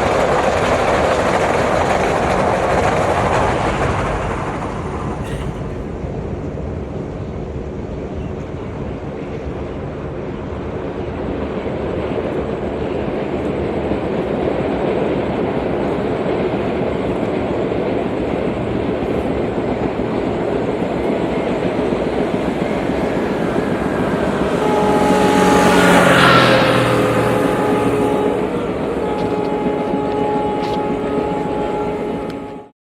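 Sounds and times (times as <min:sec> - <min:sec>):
train running by: 0:00.0 - 0:32.7.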